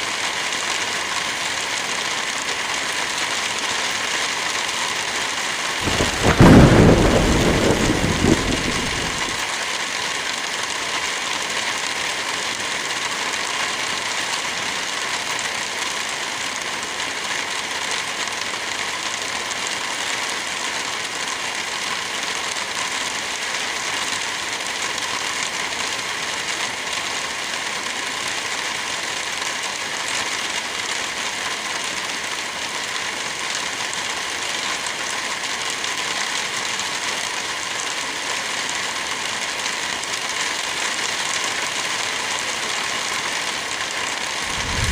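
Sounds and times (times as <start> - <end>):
steady rain: 0.0 - 44.9
thunder clap rumbling: 5.8 - 9.4, 44.4 - 44.9.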